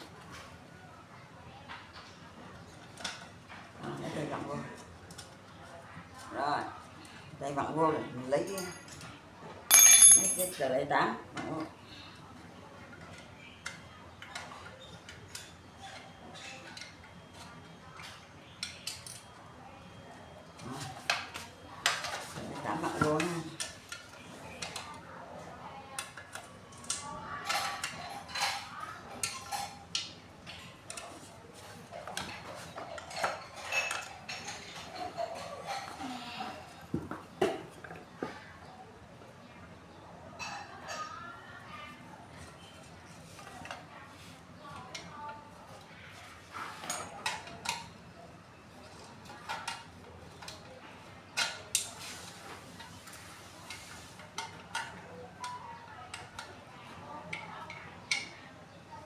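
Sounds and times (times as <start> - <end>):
hand tool clinking on metal: 9.7 - 10.6.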